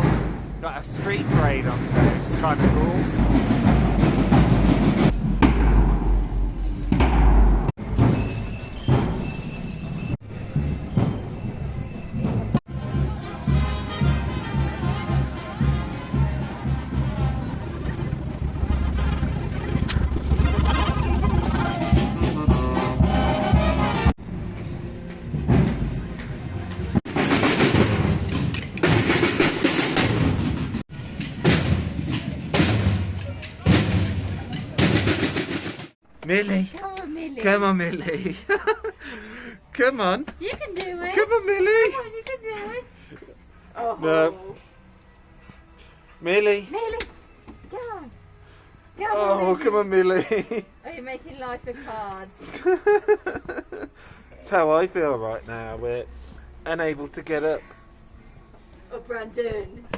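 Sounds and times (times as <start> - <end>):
parade music with drum hits: 0.0 - 18.1, 20.7 - 36.7
loud street din: 0.0 - 36.2.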